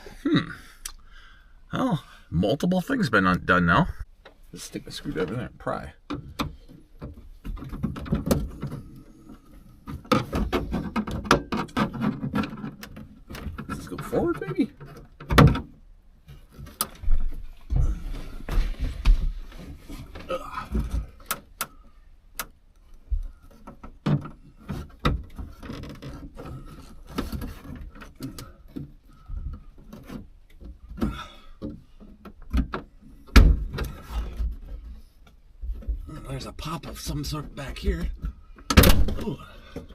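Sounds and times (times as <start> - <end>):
clicks scrapes and knocks: 6.1 - 15.7.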